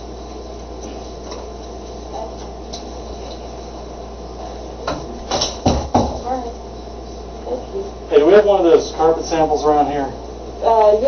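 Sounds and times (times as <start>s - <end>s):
low background hum: 0.0s - 11.0s
sharp knocks and clatters: 4.9s - 6.2s.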